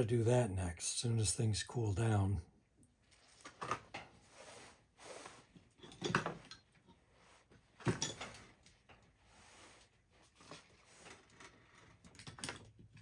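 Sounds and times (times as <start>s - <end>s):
soft scraping and rustling: 3.0s - 12.2s
tools knocking and clattering: 5.8s - 6.9s, 7.8s - 9.0s.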